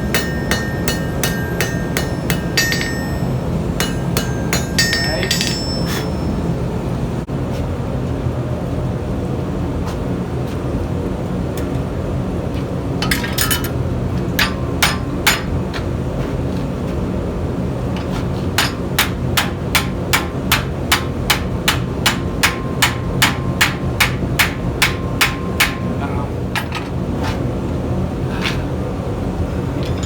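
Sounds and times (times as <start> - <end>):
hammer striking hot iron on anvil: 0.0 - 6.9, 13.0 - 15.8, 18.0 - 26.9
steady low rumble: 0.0 - 7.4.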